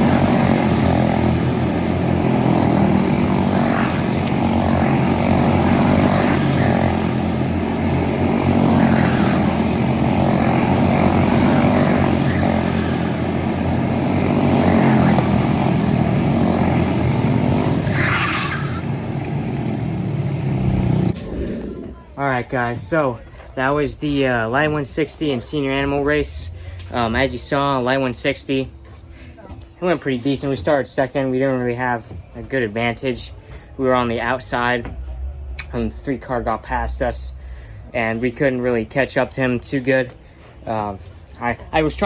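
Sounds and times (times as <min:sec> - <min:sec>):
go-kart engines racing: 0:00.0 - 0:21.7.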